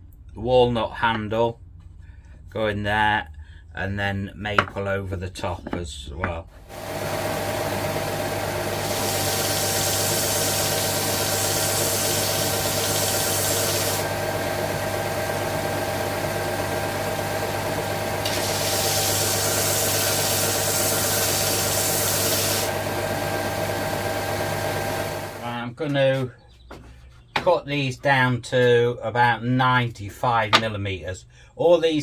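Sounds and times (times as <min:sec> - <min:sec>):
workshop power tool running: 0:06.6 - 0:25.5
wood being planed: 0:06.7 - 0:25.4.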